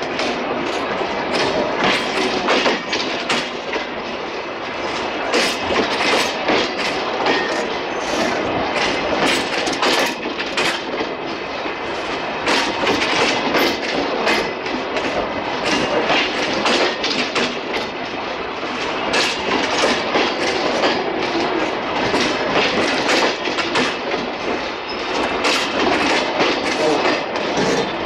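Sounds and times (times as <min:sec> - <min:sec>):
train wheels rumbling on rails: 0:00.0 - 0:28.0
wheels clacking over rail joints: 0:00.0 - 0:28.0.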